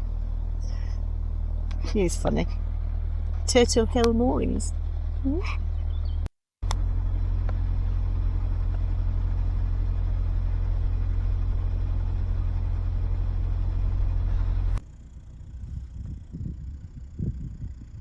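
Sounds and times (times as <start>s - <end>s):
boat diesel engine droning: 0.0s - 18.0s
uneven low rumble: 0.0s - 18.0s.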